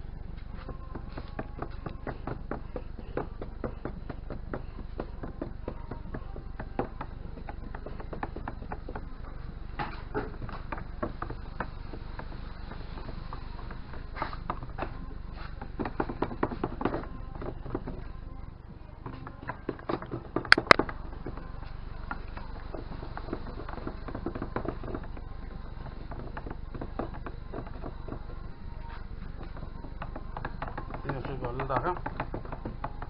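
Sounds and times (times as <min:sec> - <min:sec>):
steady low hum: 0:00.0 - 0:15.8, 0:20.4 - 0:31.2
stirrer tapping a container: 0:20.5 - 0:20.8.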